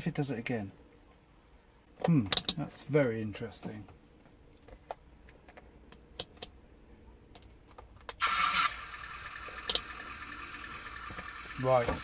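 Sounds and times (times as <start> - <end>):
electric motor whirring: 8.2 - 12.0.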